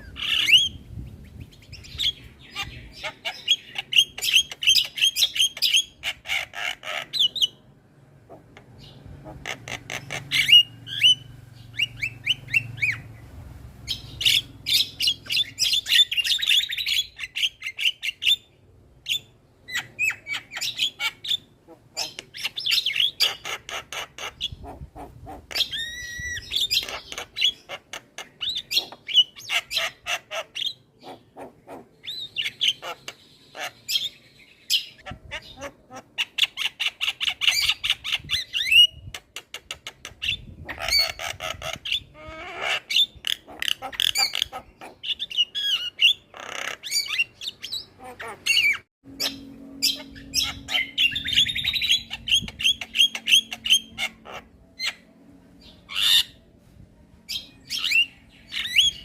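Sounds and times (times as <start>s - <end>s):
myna squawking and trilling: 19.7s - 33.0s, 39.7s - 55.0s.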